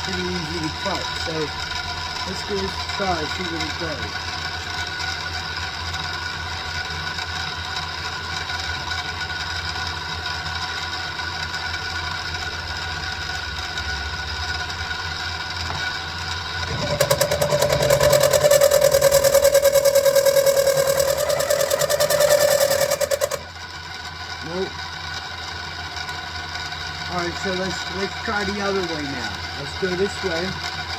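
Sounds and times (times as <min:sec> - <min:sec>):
end mill cutting steel: 0:00.0 - 0:04.3, 0:16.6 - 0:23.6
milling machine whining: 0:00.0 - 0:04.7, 0:15.7 - 0:23.7.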